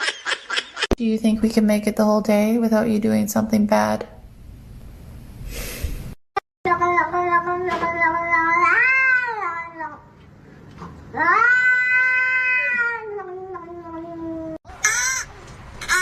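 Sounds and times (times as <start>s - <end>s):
cat yowling: 8.3s - 10.0s, 11.2s - 15.3s.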